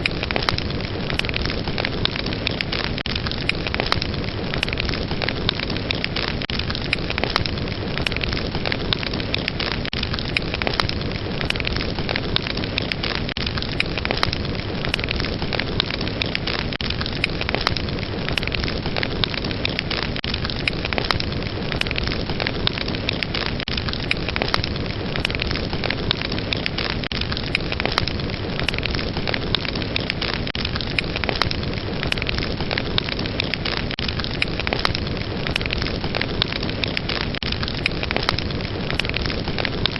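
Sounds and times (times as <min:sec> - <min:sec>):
wood fire crackling and hissing: 0:00.0 - 0:39.9.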